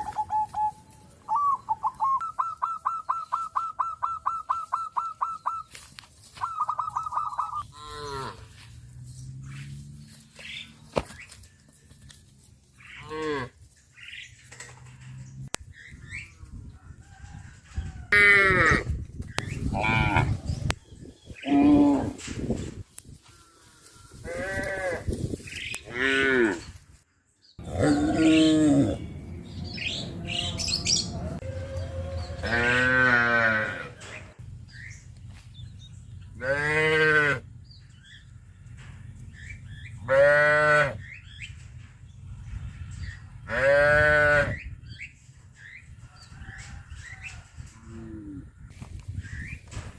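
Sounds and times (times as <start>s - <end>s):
cattle mooing: 27.6s - 29.0s, 30.1s - 34.0s, 36.4s - 37.4s.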